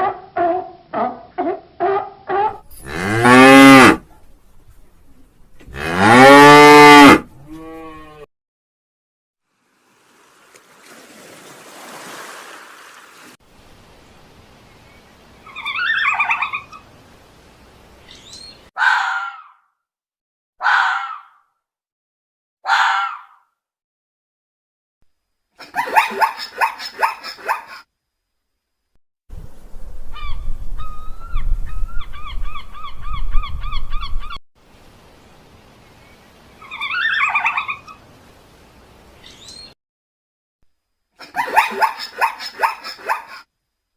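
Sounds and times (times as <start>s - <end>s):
loud harsh animal calls: 15.5s - 16.8s, 18.8s - 19.7s, 20.6s - 21.4s, 22.6s - 23.4s.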